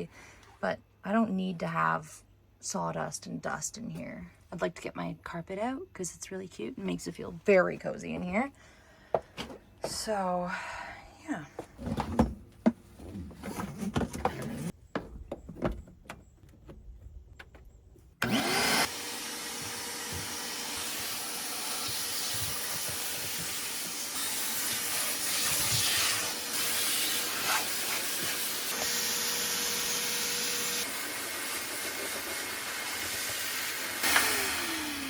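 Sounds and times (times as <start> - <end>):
vacuum cleaner sucking debris: 18.2 - 35.0.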